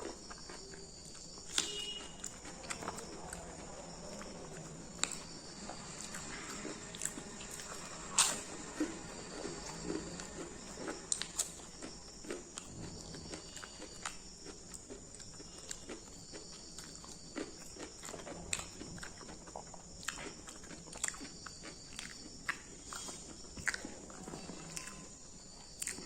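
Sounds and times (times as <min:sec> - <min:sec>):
person chewing crunchy food: 0:00.0 - 0:26.0
high-pitched hum: 0:01.6 - 0:13.7.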